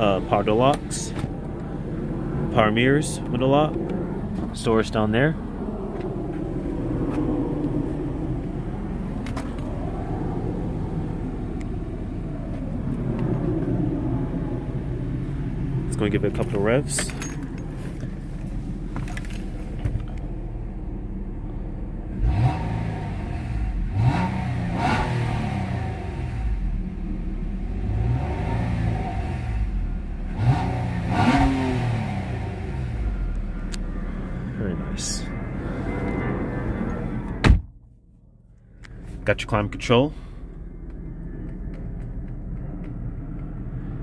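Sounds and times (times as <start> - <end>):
car engine idling: 0.0 - 24.0, 29.6 - 44.0
car engine revving: 18.6 - 37.5.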